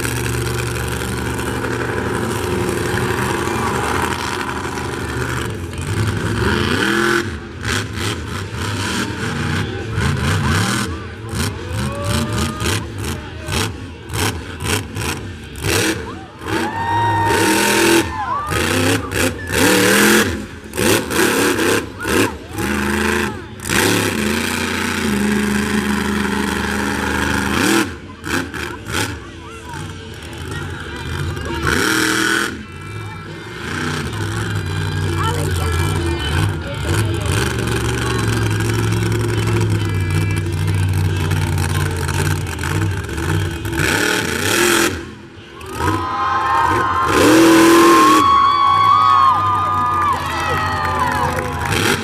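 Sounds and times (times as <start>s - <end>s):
rising engine whine: 0.0s - 13.5s
monster truck engine revving: 0.0s - 52.0s.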